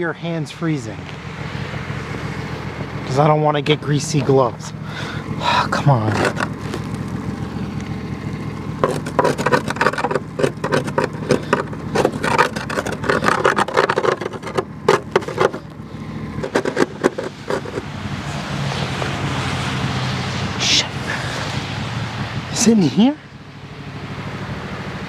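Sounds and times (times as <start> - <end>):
metal tools clinking and scraping: 5.8 - 6.9, 8.8 - 15.8, 16.4 - 17.9.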